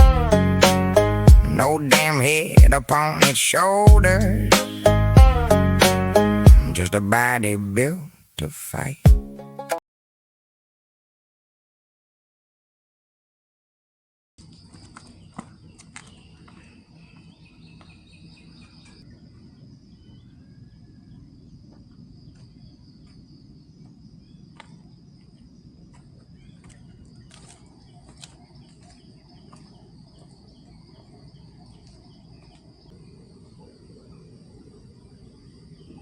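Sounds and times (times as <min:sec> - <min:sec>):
insects trilling: 0:01.5 - 0:03.9, 0:14.4 - 0:36.0.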